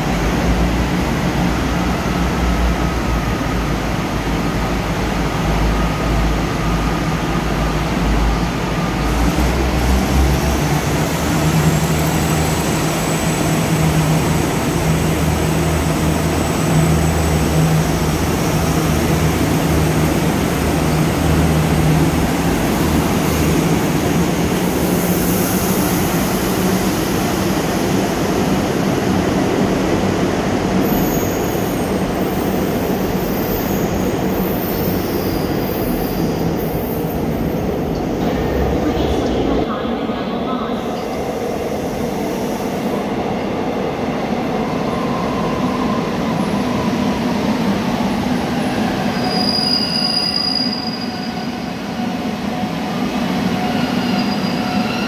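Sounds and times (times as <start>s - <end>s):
train engine drone: 0.0s - 55.0s
rumble of moving coaches: 36.9s - 42.2s.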